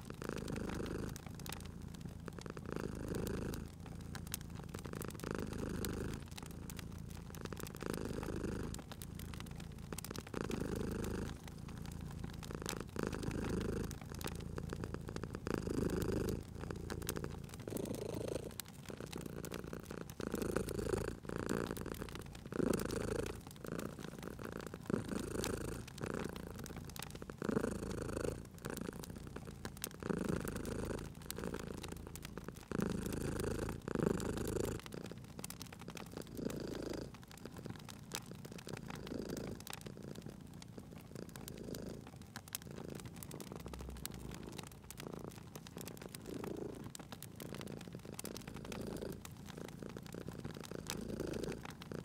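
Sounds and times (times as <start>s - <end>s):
cat purring: 0.0s - 52.0s
wood fire crackling: 0.0s - 52.0s.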